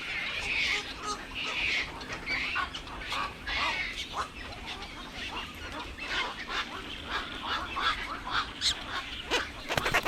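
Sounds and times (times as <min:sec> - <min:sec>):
birds honking: 0:09.4 - 0:10.0.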